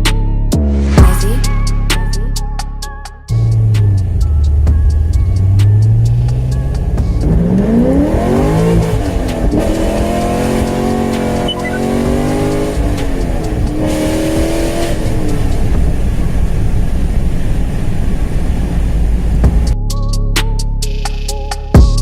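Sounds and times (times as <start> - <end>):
car engine revving: 3.3 - 19.8.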